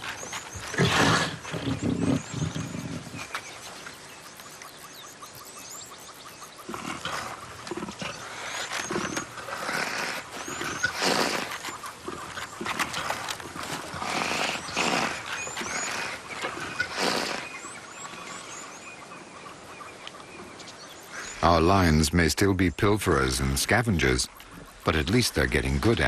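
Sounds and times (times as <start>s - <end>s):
lions growling and snarling: 0.0s - 3.6s, 6.3s - 21.5s.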